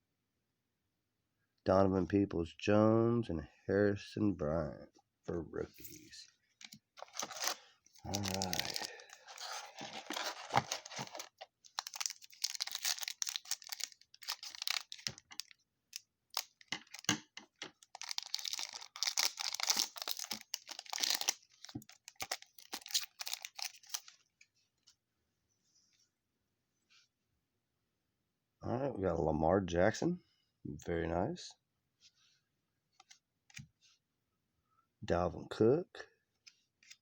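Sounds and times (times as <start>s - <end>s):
cards shuffling: 5.8s - 15.5s, 16.3s - 24.1s
card pack wrapper tearing: 7.0s - 24.1s.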